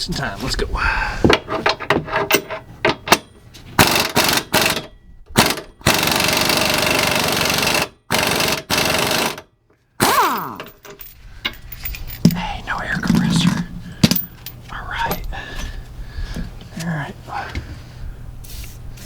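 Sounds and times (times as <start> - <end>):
impact wrench hammering: 1.7 - 9.4, 10.0 - 11.6.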